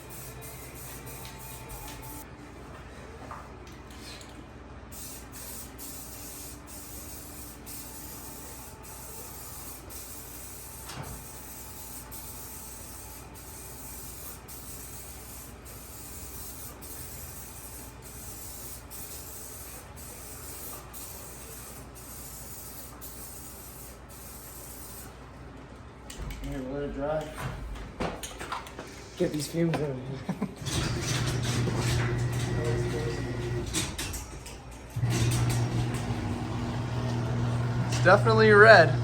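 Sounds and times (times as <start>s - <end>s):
paint spraying hiss: 0.0s - 2.2s, 4.9s - 25.1s.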